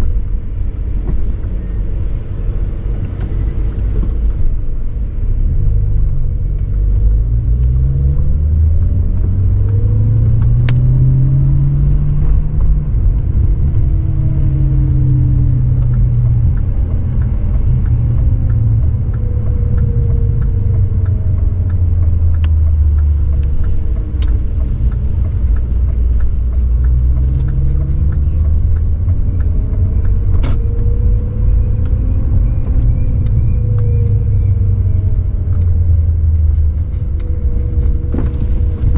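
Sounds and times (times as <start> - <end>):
car engine and exhaust rumble: 0.0 - 38.9.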